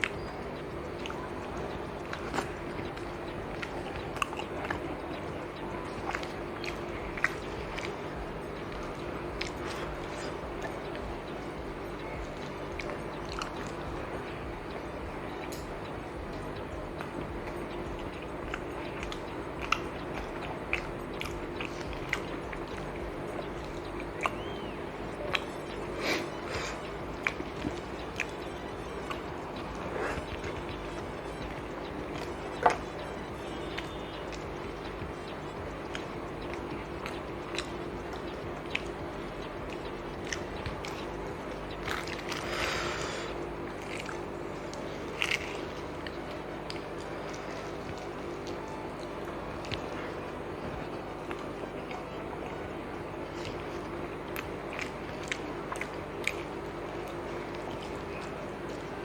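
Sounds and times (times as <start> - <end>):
steady low hum: 0.0 - 59.0
person chewing food: 16.9 - 59.0
mouth clicks and smacks: 33.8 - 51.6
wet mouth clicks: 45.1 - 45.8.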